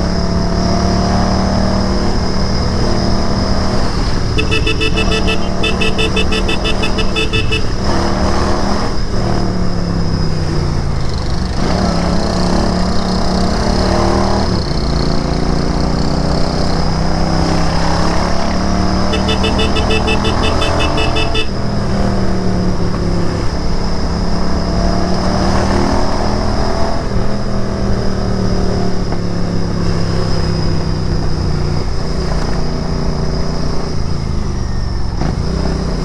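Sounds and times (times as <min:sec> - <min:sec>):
motorcycle engine revving: 0:00.6 - 0:09.0, 0:17.3 - 0:21.6
rapid high beeping: 0:04.2 - 0:08.0, 0:19.1 - 0:21.5.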